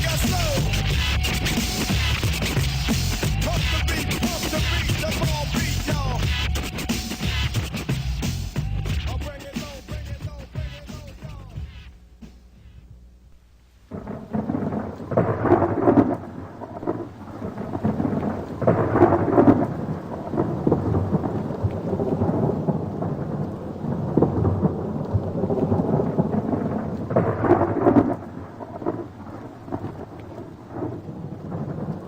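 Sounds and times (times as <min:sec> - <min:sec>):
rain: 0:13.7 - 0:32.0
rumbling thunder: 0:13.9 - 0:32.0.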